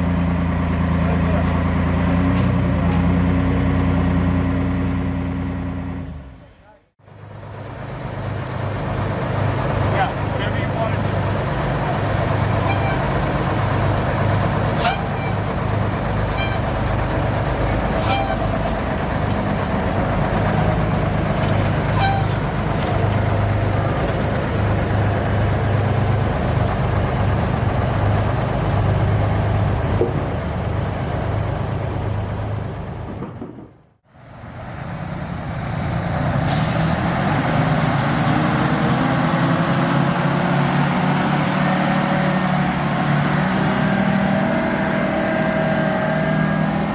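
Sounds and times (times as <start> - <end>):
diesel truck engine revving: 0.0 - 6.5, 7.1 - 33.4, 34.0 - 46.9
diesel truck engine running: 0.0 - 46.9.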